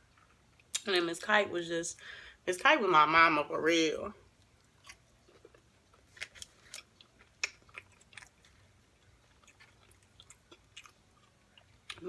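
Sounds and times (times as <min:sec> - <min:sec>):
person chewing food: 0:00.0 - 0:00.8, 0:04.3 - 0:12.0.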